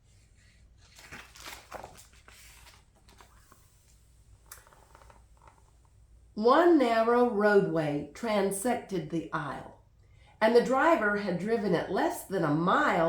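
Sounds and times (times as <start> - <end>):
paper pages rustling: 0.1 - 5.8.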